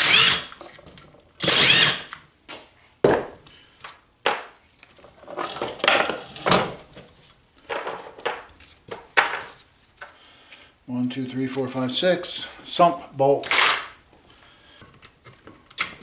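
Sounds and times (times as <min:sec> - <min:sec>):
power driver whirring: 0:00.0 - 0:00.6, 0:01.4 - 0:02.2
metal clinks and knocks: 0:05.3 - 0:06.8, 0:07.6 - 0:09.6.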